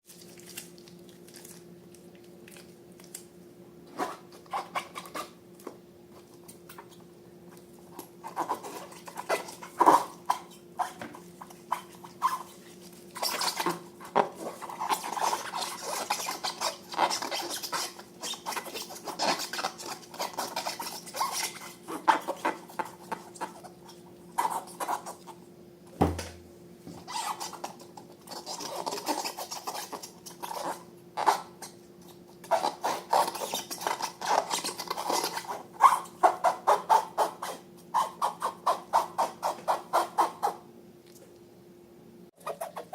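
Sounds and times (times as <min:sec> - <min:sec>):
sticky slime squishing: 0:00.1 - 0:03.4, 0:07.9 - 0:25.3
rubbery squeaks: 0:03.9 - 0:05.4, 0:08.2 - 0:25.4, 0:27.0 - 0:31.8, 0:32.4 - 0:40.6, 0:42.4 - 0:42.9.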